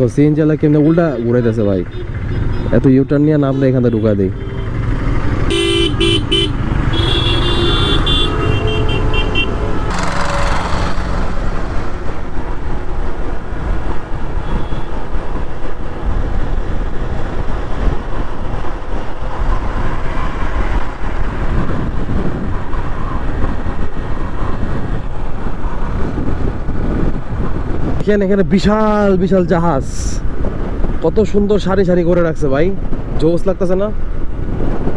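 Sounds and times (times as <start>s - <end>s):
wind and road noise: 0.0s - 34.9s
vehicle horn honking: 3.8s - 12.2s.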